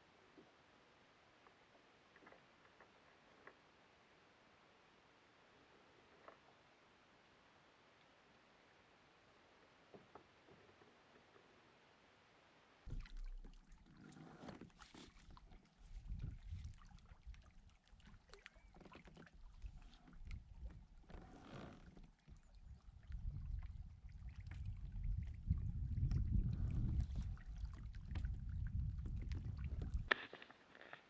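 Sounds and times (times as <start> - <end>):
water sloshing: 12.9 - 30.2.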